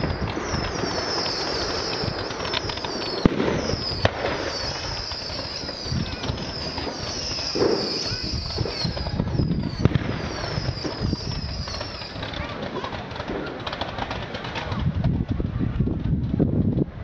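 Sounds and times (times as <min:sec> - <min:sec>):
high falling whistles: 0:00.0 - 0:12.3
firework bangs: 0:00.0 - 0:16.4
fireworks crackling and fizzing: 0:00.0 - 0:17.0.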